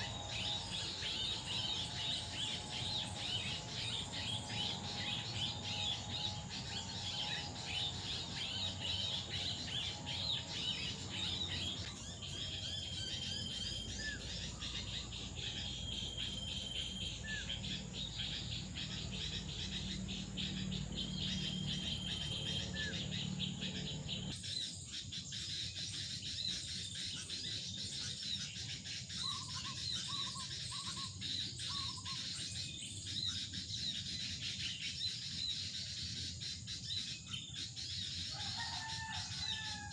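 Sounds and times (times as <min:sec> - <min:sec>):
insects chirring: 0:00.0 - 0:24.3
low background rumble: 0:00.0 - 0:24.4
whistled bird notes: 0:00.0 - 0:24.8.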